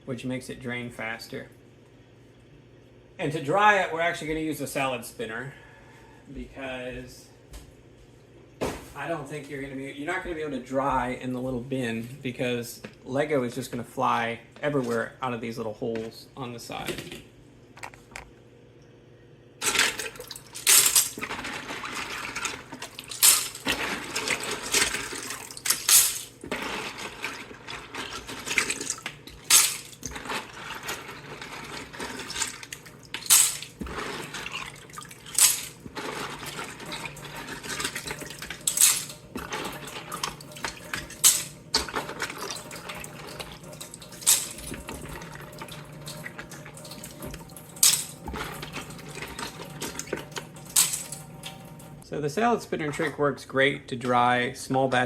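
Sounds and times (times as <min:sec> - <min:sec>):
plastic bricks clattering: 0:19.6 - 0:45.2, 0:47.8 - 0:49.5, 0:50.7 - 0:51.2
water trickling and dripping: 0:42.3 - 0:52.0.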